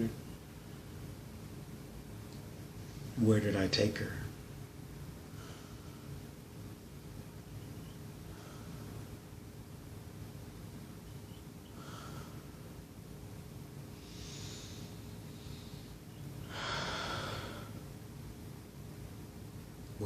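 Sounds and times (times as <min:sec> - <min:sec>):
steady low hum: 0:00.0 - 0:20.0
person breathing: 0:05.3 - 0:06.2, 0:08.3 - 0:09.2, 0:11.7 - 0:12.7, 0:13.9 - 0:17.9.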